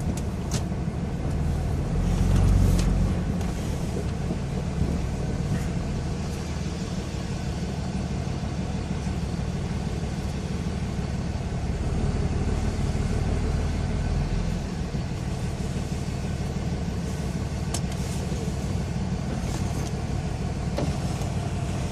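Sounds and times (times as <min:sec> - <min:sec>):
diesel engine rumble: 0:00.0 - 0:21.9.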